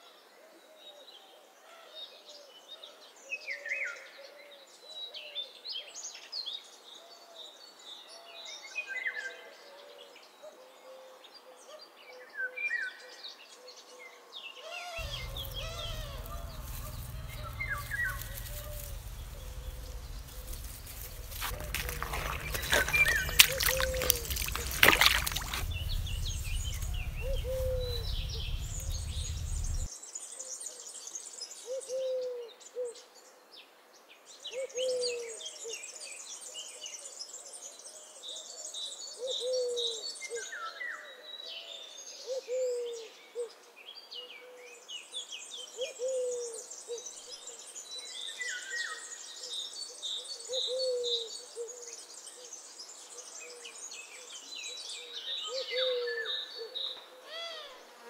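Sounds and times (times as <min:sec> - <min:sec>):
bird hooting: 0:15.0 - 0:24.6, 0:25.6 - 0:29.9
loud rumbling noise: 0:15.0 - 0:29.9
small birds twittering: 0:15.0 - 0:29.9.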